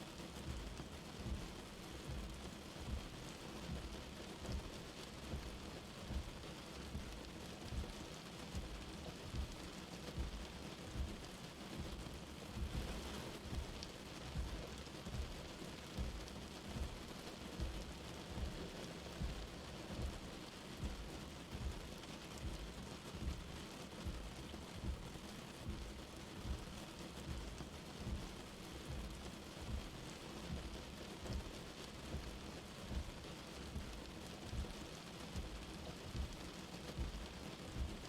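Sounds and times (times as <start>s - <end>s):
light rain falling: 0.0s - 38.0s
soft low thuds: 8.6s - 21.8s, 22.4s - 34.8s, 35.4s - 38.0s.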